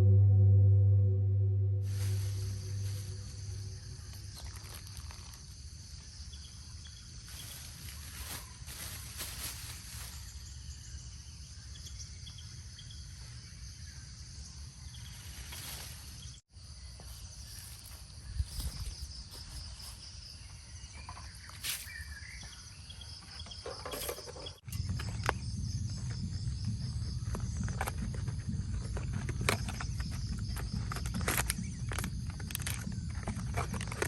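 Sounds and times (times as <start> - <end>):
low rumble: 0.0 - 4.4, 24.7 - 30.8
insects chirring: 1.9 - 34.0.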